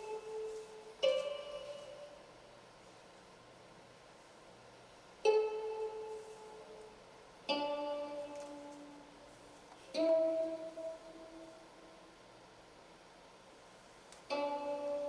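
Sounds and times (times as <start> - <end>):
plucked string notes: 0.0 - 2.2, 7.5 - 9.1, 9.8 - 12.0, 14.3 - 15.0.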